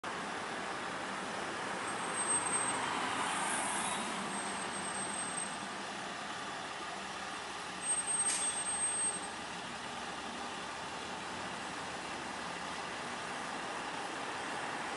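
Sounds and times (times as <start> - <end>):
street noise: 0.0 - 14.9
fire truck engine running: 4.4 - 14.9.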